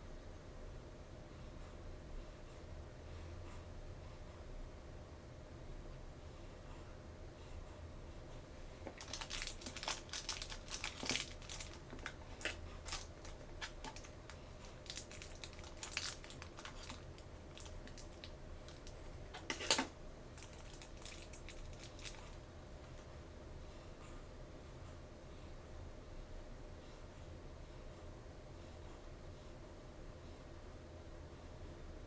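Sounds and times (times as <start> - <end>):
plastic packaging crinkling: 8.9 - 22.4.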